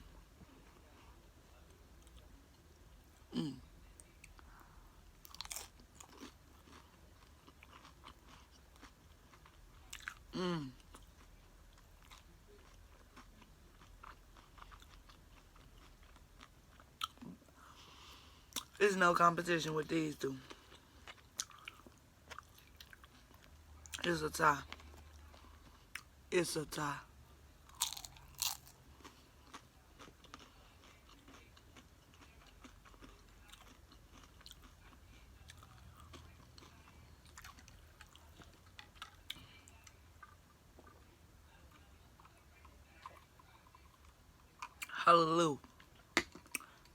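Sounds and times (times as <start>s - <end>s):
chewing crunchy food: 0.4s - 18.8s, 20.4s - 26.1s, 27.6s - 45.0s, 45.6s - 46.9s
person crunching tortilla chips: 5.2s - 11.3s, 27.7s - 39.9s.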